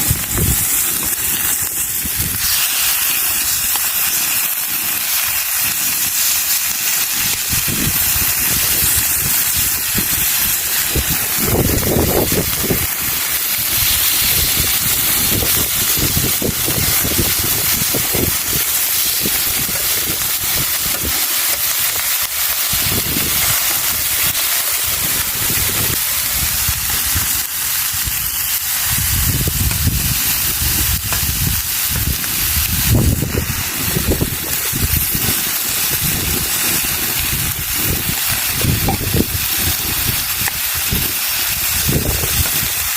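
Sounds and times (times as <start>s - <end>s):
low fire rumbles: 0.0s - 42.9s
meat sizzling on a grill: 0.0s - 42.9s.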